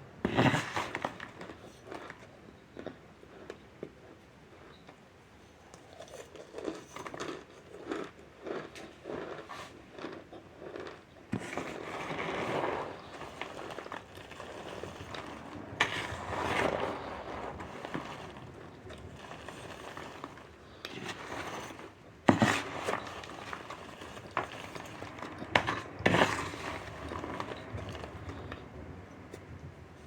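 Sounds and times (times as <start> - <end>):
cornstarch crunching while chewed: 0.3 - 5.0, 5.7 - 28.6
crackling: 10.9 - 28.8.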